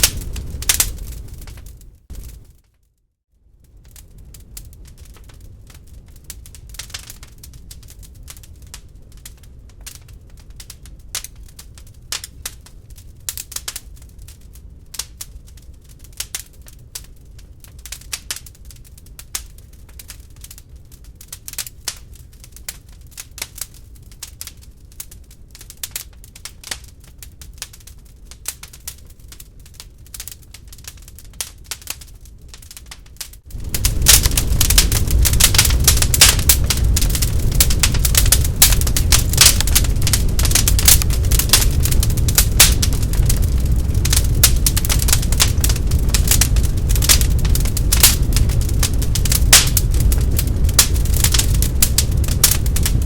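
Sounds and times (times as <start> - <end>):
log fire crackling: 0.0 - 2.8, 3.5 - 53.0
low steady rumble: 29.5 - 53.0.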